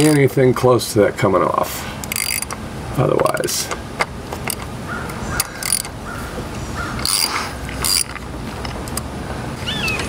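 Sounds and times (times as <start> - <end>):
ratchet wrench clicking: 2.0 - 2.6, 5.4 - 5.9, 7.0 - 9.0.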